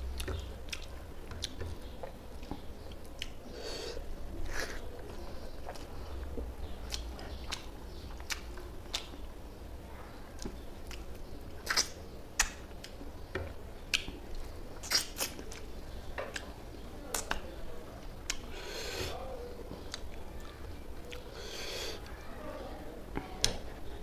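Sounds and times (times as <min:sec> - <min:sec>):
man chewing food: 0:00.0 - 0:09.4, 0:10.3 - 0:22.1
wet lip smacks: 0:11.6 - 0:13.0, 0:14.8 - 0:15.6.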